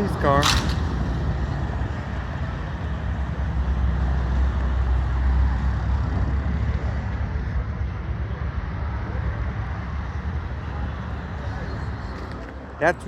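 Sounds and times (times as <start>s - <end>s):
motor traffic rumble: 0.0s - 13.0s.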